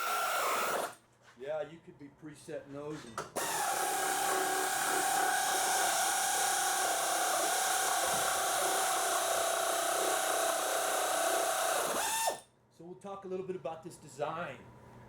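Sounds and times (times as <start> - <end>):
power drill running under load: 0.0 - 1.0, 3.4 - 12.4.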